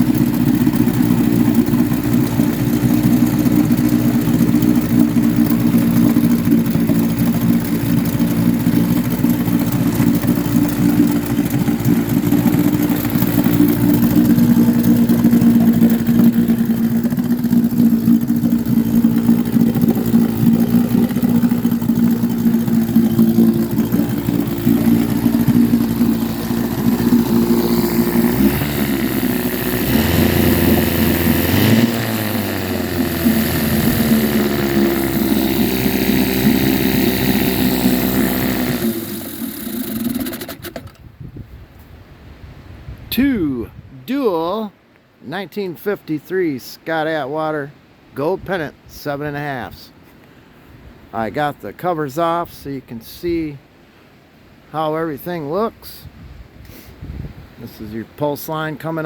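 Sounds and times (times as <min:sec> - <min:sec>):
outboard motor running: 0:00.0 - 0:41.2.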